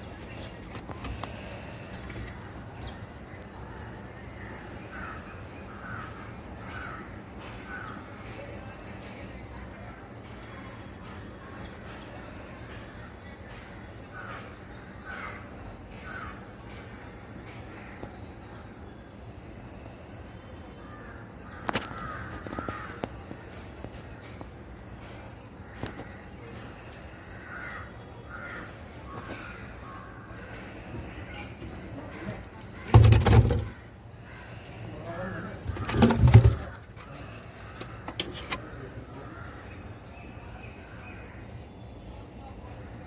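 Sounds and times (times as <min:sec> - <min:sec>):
crow cawing: 0:04.6 - 0:08.1, 0:14.1 - 0:16.9, 0:20.8 - 0:23.1, 0:27.2 - 0:31.2, 0:38.6 - 0:39.8.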